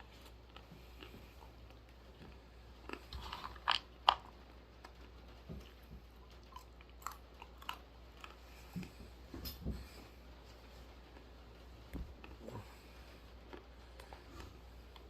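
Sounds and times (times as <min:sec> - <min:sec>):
almonds crunching while chewed: 0:00.0 - 0:05.2, 0:06.2 - 0:08.6, 0:13.4 - 0:15.0.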